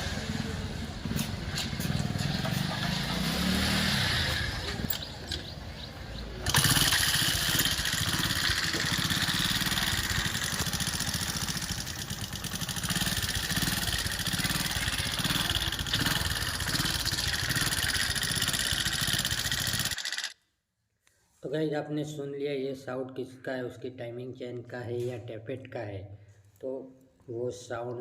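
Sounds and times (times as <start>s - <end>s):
moped engine idling: 4.2s - 20.0s.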